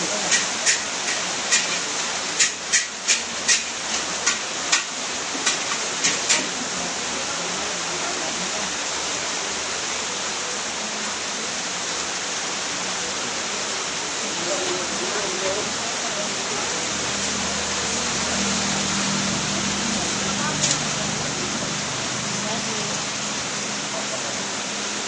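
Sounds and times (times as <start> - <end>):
heavy rain: 0.0 - 25.0
drips tapping a hard surface: 0.3 - 6.5.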